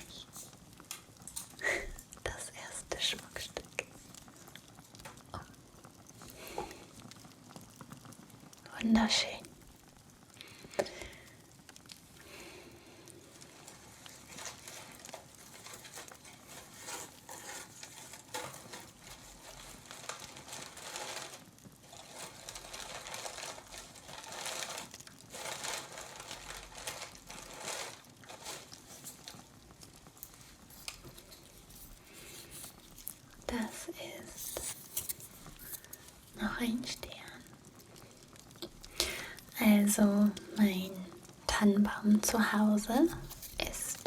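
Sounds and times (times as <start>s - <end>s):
rustling and crinkling: 0.0s - 8.6s, 9.8s - 41.6s, 42.2s - 44.0s.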